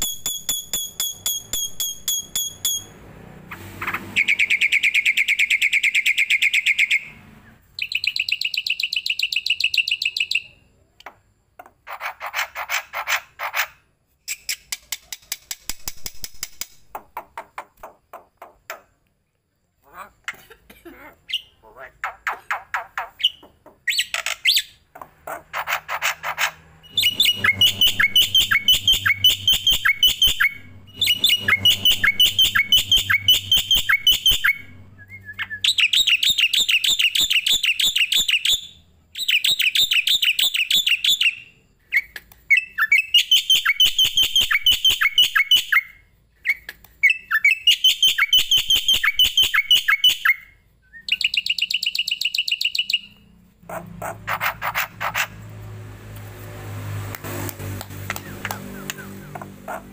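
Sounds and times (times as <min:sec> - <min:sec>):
songbird high chirps: 0:04.1 - 0:11.2, 0:26.8 - 0:53.3.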